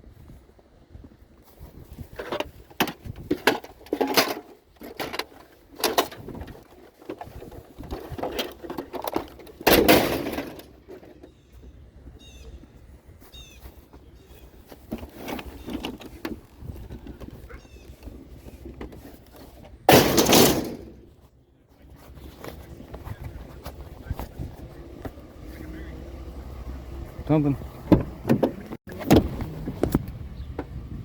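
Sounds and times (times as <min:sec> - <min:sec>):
knocks and clattering: 0:02.1 - 0:11.4, 0:14.7 - 0:21.2.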